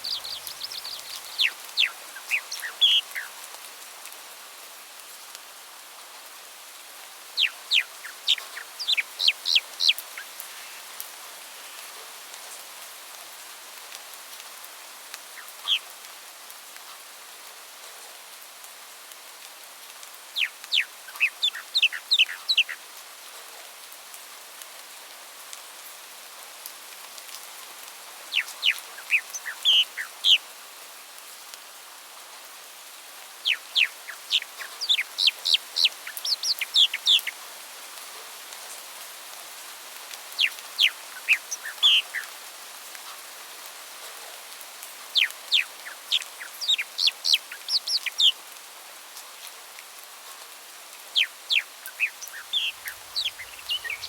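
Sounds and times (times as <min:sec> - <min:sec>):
songbird singing: 0:00.0 - 0:03.6, 0:07.3 - 0:12.0, 0:15.3 - 0:15.9, 0:20.4 - 0:22.8, 0:28.2 - 0:30.5, 0:33.4 - 0:37.5, 0:40.1 - 0:42.4, 0:45.0 - 0:48.4, 0:51.1 - 0:54.0
steady hiss: 0:00.0 - 0:17.8, 0:18.4 - 0:23.4, 0:25.6 - 0:54.0.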